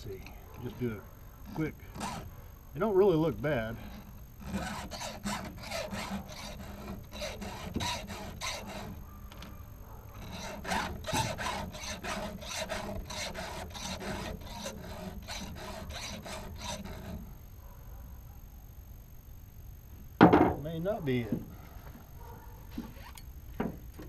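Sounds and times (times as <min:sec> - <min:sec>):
hand file rasping on chain: 0:01.4 - 0:02.3, 0:03.5 - 0:09.6, 0:10.2 - 0:17.3.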